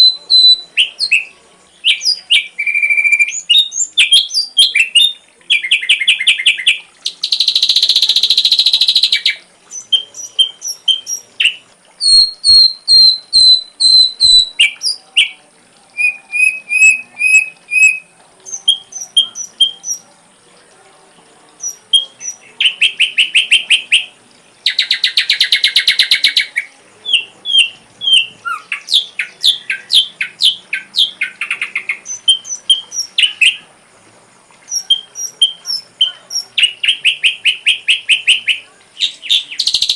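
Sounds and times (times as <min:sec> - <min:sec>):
bird chirping and whistling: 0:00.0 - 0:01.3, 0:01.9 - 0:15.4, 0:16.0 - 0:20.0, 0:27.1 - 0:33.6
rapid buzzy bird trill: 0:16.0 - 0:20.1.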